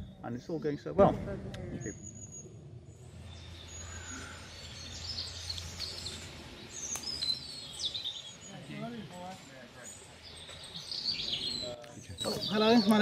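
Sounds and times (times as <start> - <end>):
low rumble: 0.0 - 7.5
outdoor background hiss: 0.0 - 13.0
small birds chirping: 1.6 - 13.0.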